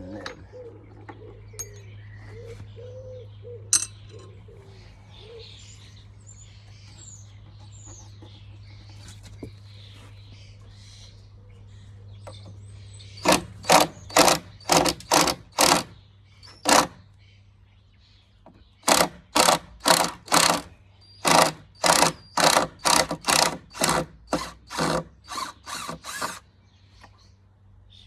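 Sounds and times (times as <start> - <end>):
pigeon cooing: 0.0 - 5.6
small birds chirping: 0.0 - 28.0
power tool rasps: 13.2 - 17.0, 18.8 - 26.4.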